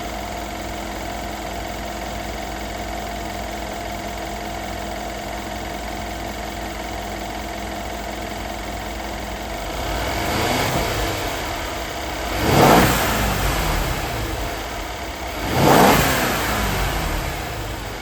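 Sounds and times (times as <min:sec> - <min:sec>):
car engine idling: 0:00.0 - 0:18.0
engine throttle blips: 0:09.6 - 0:18.0.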